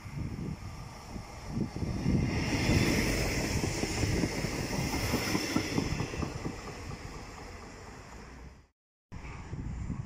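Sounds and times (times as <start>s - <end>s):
train rumble: 0.0s - 10.0s
train wheels clattering over rail joints: 2.2s - 8.3s.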